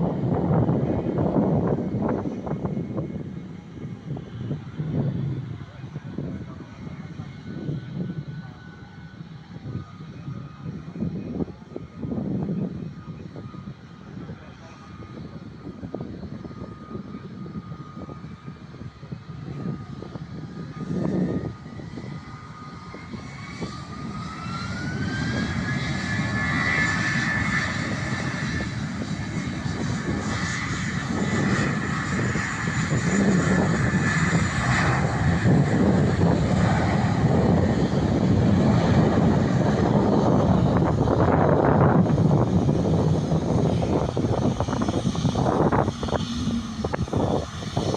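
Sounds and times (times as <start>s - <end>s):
jet airliner engines: 0.0s - 47.9s
thin rising whine: 44.5s - 47.8s.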